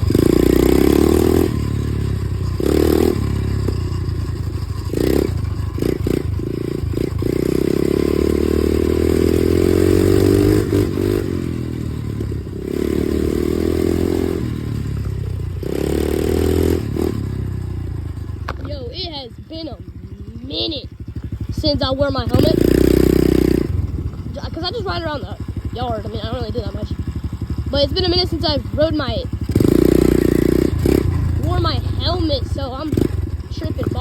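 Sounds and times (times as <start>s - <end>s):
dirt bike engine revving: 0.0s - 34.0s
rattling and scraping: 18.1s - 26.9s.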